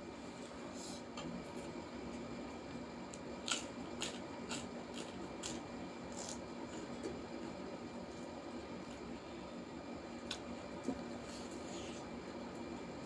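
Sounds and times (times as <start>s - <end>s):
crunching okra bites: 3.4s - 6.4s.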